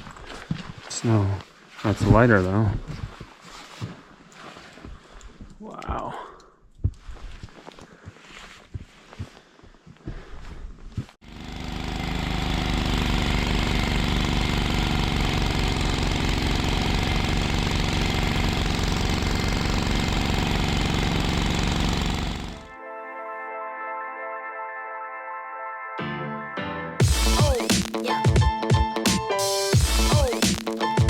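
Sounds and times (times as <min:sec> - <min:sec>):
small engine running: 0:11.2 - 0:22.8.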